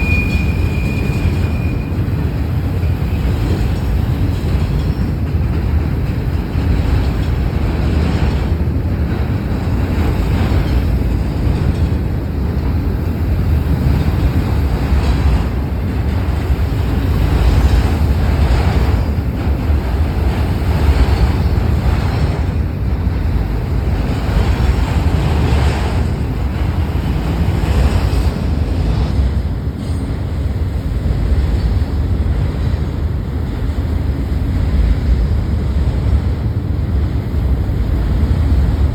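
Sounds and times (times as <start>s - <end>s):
freight train rumbling past: 0.0s - 38.9s
wind buffeting microphone: 0.5s - 38.9s.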